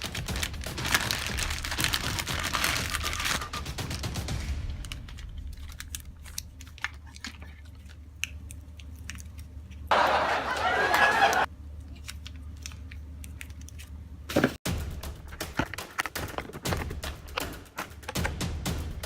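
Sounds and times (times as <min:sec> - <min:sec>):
packaging rustling: 0:00.0 - 0:04.1.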